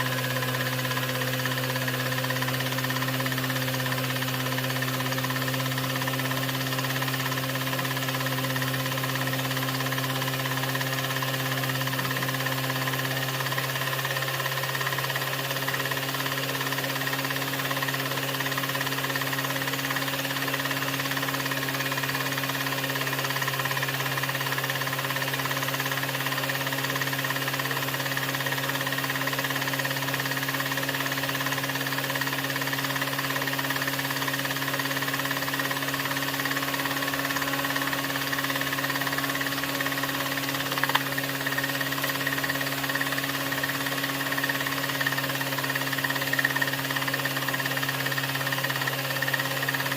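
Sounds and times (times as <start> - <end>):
film projector hum and clatter: 0.0 - 49.9
projector click: 40.8 - 41.1.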